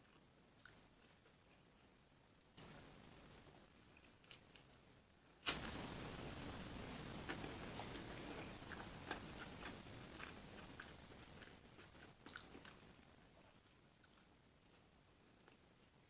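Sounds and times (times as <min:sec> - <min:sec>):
person chewing food: 0:00.0 - 0:02.0, 0:02.6 - 0:04.8, 0:06.7 - 0:16.0.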